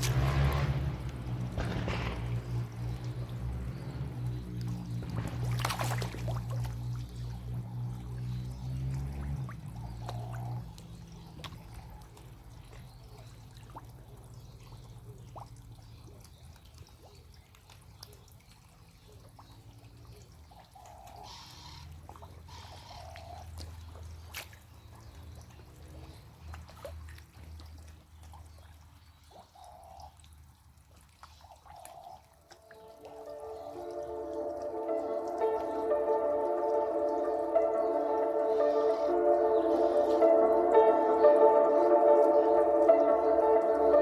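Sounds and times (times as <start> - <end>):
small splashes: 0.0 - 20.6, 21.8 - 44.0
water trickling and dripping: 0.0 - 44.0.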